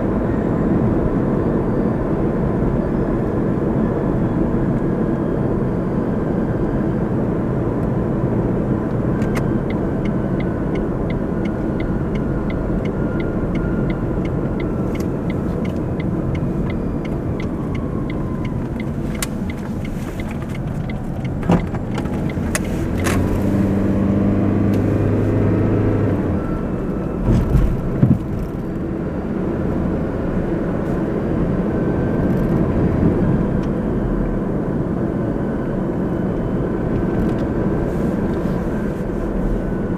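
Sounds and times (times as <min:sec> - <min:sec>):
car road and engine noise: 0:00.0 - 0:39.9
regular ticking: 0:10.8 - 0:22.7.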